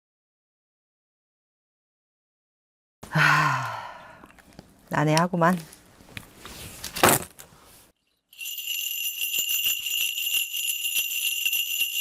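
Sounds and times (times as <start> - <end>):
breathy noise: 3.0 - 4.4
bells jingling: 8.0 - 12.0.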